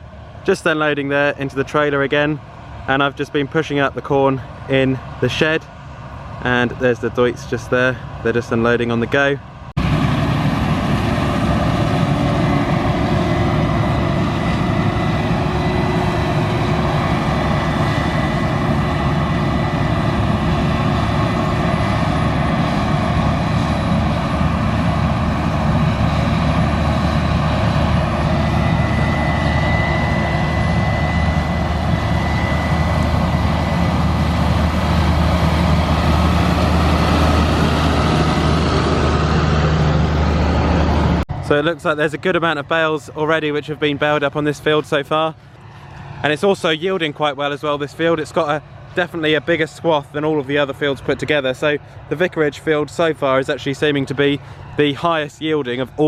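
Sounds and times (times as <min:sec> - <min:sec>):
deep engine rumble: 0:00.0 - 0:56.0
high machine whine: 0:08.7 - 0:52.4.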